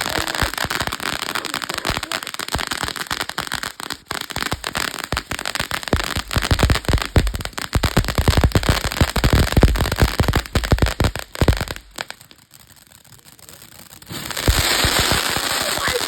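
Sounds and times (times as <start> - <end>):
deep firework pops: 0.0 - 12.2, 14.0 - 16.0
firework fountain hissing and crackling: 0.0 - 16.0.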